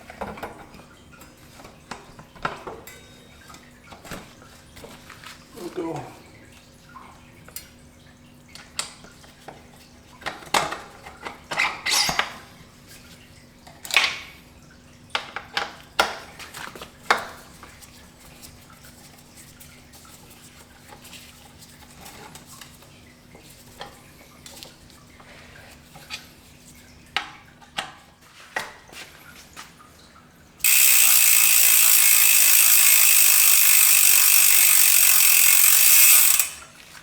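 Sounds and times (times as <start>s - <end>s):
metal bike parts clinking: 30.7s - 36.6s.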